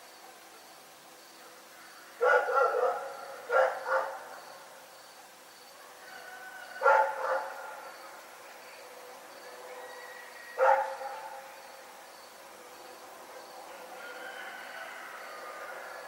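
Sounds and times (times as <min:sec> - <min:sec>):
dog barking: 0:02.2 - 0:04.3, 0:06.8 - 0:07.8, 0:10.6 - 0:11.5.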